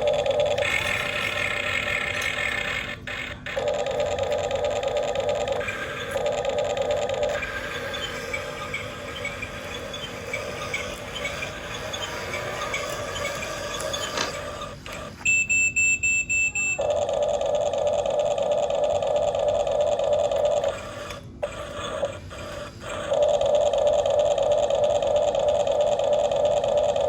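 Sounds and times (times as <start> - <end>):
motor whine: 0.0 - 15.3, 16.8 - 27.0
rapid electronic beeping: 0.0 - 15.8.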